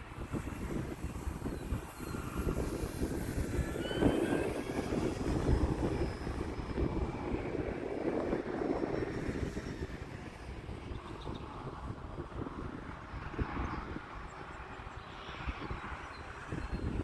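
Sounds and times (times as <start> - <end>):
electric motor and propeller whining: 0.0 - 13.0
wind buffeting microphone: 0.0 - 17.0.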